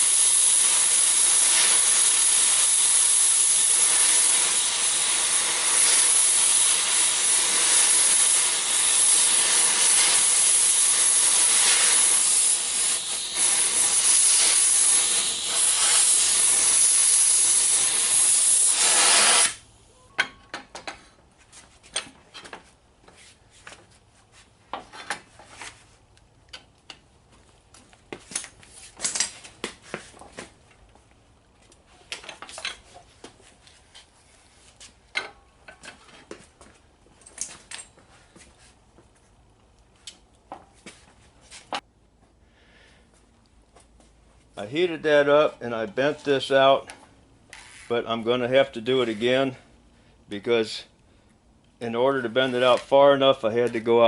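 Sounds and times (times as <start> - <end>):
cutting torch flame hissing: 0.0 - 19.8.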